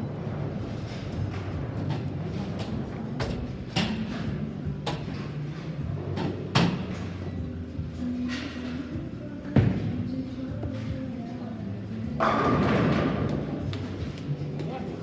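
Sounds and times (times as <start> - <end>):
low rumble from bowling lanes: 0.0 - 4.9
background music: 0.1 - 15.0
bowling balls knocking pins: 12.2 - 14.2.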